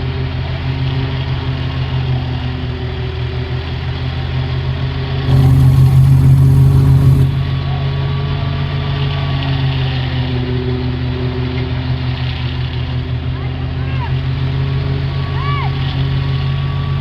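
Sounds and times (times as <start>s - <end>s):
tractor engine running: 5.3s - 7.8s.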